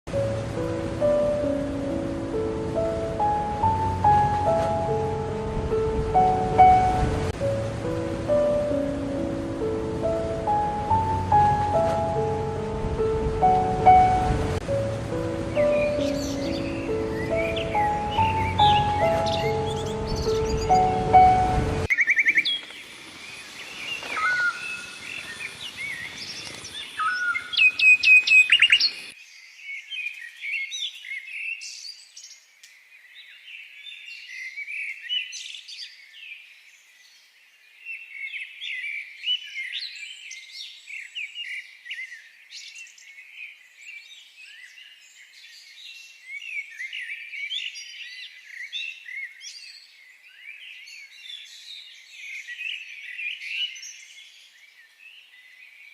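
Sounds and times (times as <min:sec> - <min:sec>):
chorus of small birds chirping: 0:15.4 - 0:29.1.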